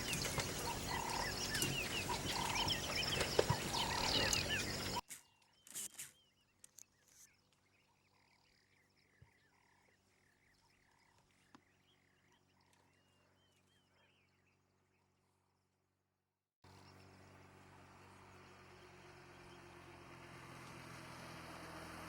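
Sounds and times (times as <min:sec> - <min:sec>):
chirping animal calls: 0:00.0 - 0:05.0.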